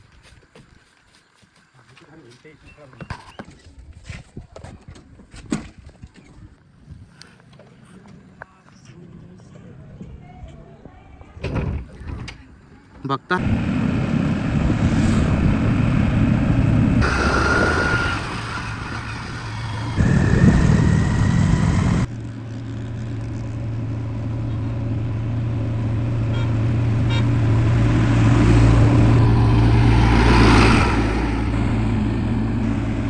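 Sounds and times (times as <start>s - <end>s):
diesel engine running under load: 13.4s - 33.0s.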